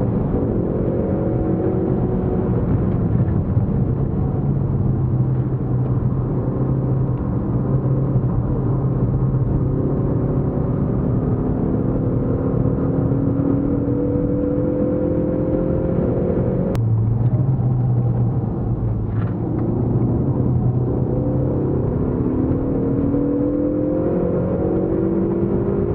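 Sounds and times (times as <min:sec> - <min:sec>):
car engine from inside cabin: 0:00.0 - 0:25.9.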